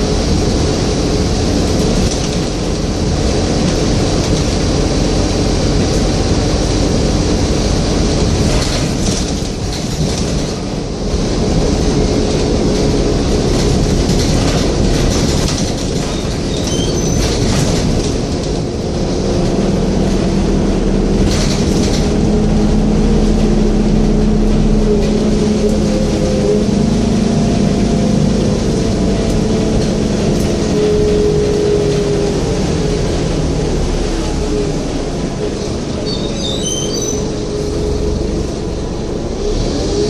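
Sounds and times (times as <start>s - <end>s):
bus diesel engine rumbling: 0.0s - 40.0s
low engine hum: 0.0s - 40.0s
rattles: 11.5s - 18.8s, 21.1s - 22.4s.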